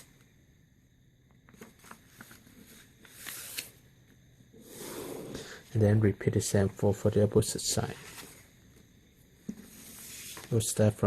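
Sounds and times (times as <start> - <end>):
paper folding and rustling: 1.5 - 3.7, 7.8 - 8.4.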